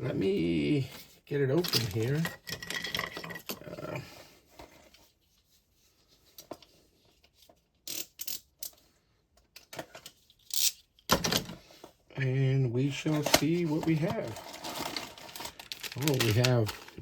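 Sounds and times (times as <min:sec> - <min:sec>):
packaging crinkling and rustling: 0:12.9 - 0:17.0.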